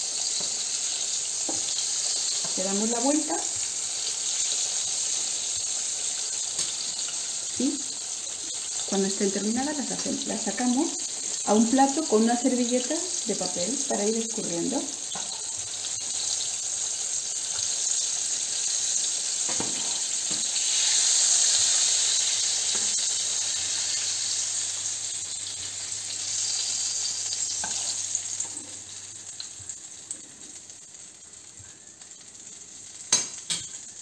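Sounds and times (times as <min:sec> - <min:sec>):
batter frying in hot oil: 0:00.0 - 0:34.0.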